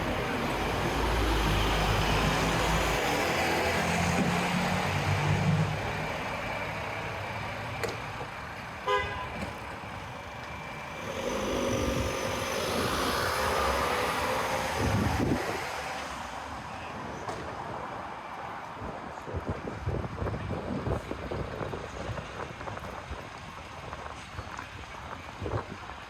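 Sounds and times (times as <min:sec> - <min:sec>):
motor vehicles passing: 0:00.0 - 0:17.6
car horn toot: 0:08.8 - 0:09.5.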